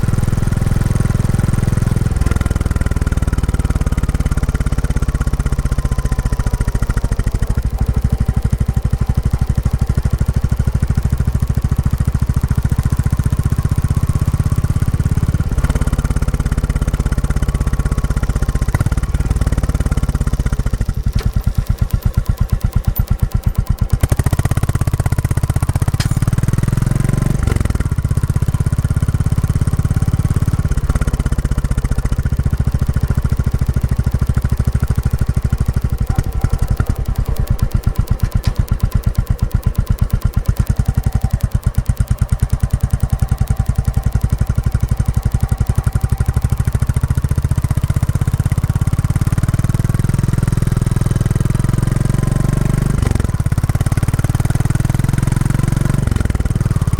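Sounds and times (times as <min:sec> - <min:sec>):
motorcycle engine thumping: 0:00.0 - 0:50.0, 0:52.7 - 0:56.9.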